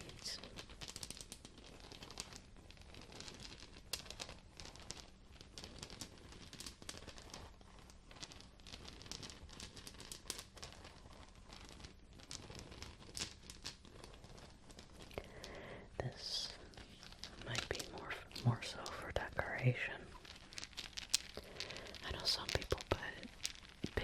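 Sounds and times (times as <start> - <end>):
object crinkling and crackling: 0.0 - 24.0.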